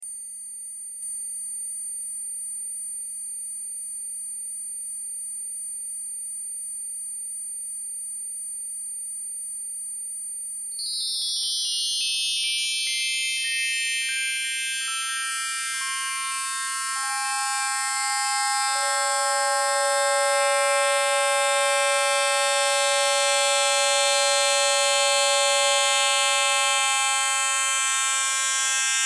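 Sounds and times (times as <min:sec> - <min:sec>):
high held synthetic tones: 0:13.8 - 0:27.7.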